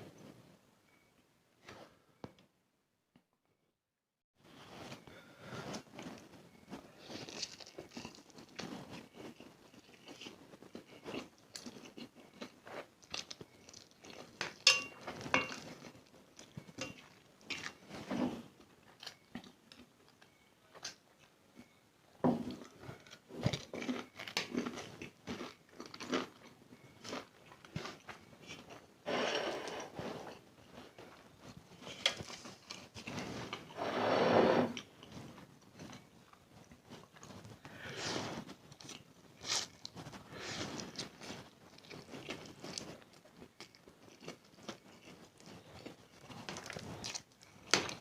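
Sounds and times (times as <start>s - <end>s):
person chewing noodles: 5.7s - 14.7s, 15.4s - 18.0s, 22.5s - 33.7s, 34.8s - 48.0s.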